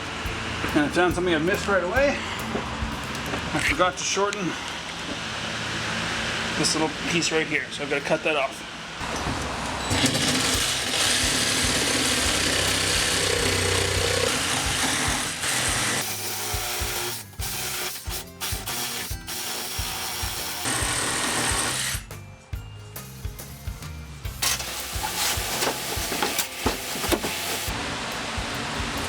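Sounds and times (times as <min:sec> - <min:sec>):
background music with beat: 0:00.0 - 0:03.5, 0:22.0 - 0:27.3
power saw cutting wood: 0:09.0 - 0:22.1, 0:24.4 - 0:29.0.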